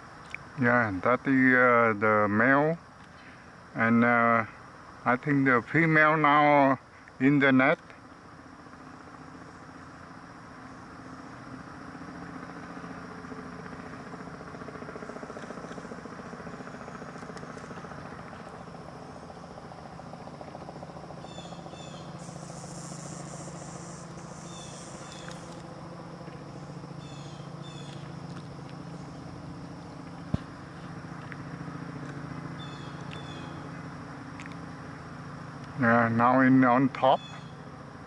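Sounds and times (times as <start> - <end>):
insects buzzing: 0.0 - 38.0
bird chirps: 21.2 - 25.6, 26.5 - 28.1, 32.6 - 33.7, 37.1 - 37.7.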